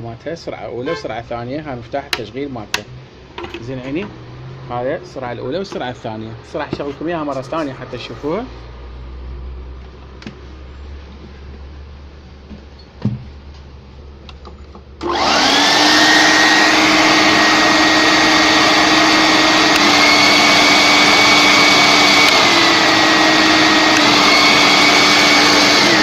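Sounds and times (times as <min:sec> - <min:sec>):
vacuum cleaner motor whine: 0:15.0 - 0:26.0.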